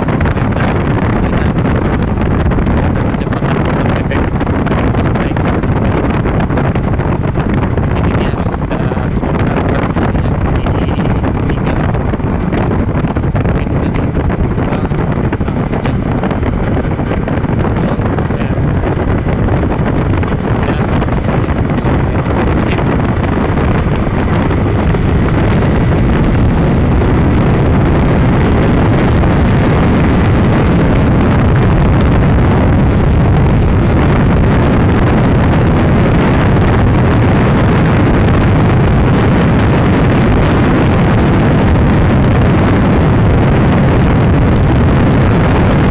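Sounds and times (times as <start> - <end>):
motorcycle engine at speed: 0.0 - 45.9
wind buffeting microphone: 0.0 - 45.9.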